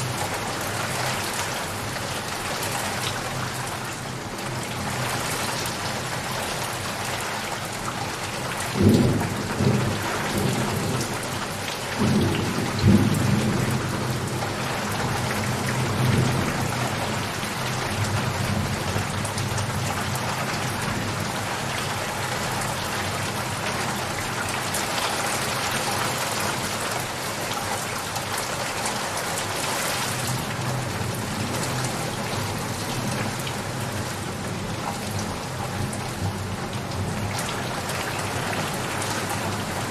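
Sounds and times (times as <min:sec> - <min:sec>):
heavy rain falling: 0:00.0 - 0:39.9
thunder rumbling: 0:12.0 - 0:16.8.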